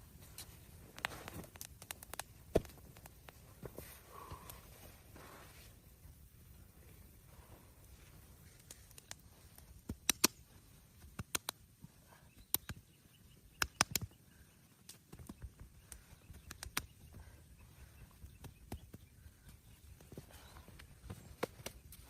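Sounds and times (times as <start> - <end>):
low steady background noise: 0.0 - 22.0
sharp cracks and clicks: 9.8 - 10.4, 11.1 - 11.6, 13.6 - 14.1.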